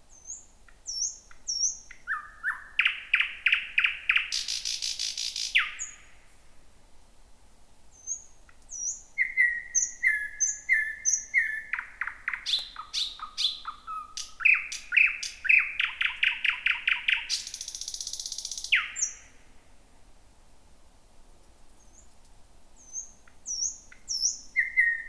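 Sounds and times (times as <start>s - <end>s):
bird singing: 0.1s - 6.1s, 8.0s - 19.4s, 22.8s - 25.0s.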